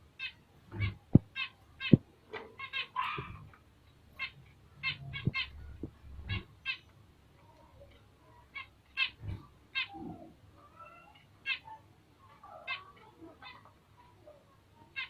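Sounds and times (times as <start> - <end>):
soft low thumps: 0.8 - 2.0, 5.2 - 6.0
finches giving harsh calls: 4.2 - 6.9.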